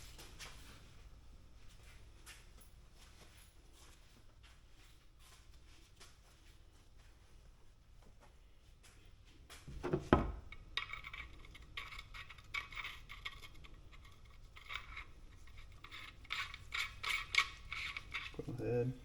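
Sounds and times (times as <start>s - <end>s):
metal fittings scraping: 9.9s - 18.9s.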